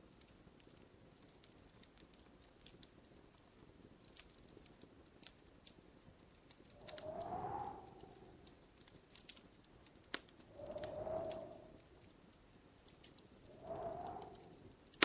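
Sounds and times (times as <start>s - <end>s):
faint wood fire crackling: 0.0s - 15.0s
rising whistle-like tone: 10.6s - 11.8s.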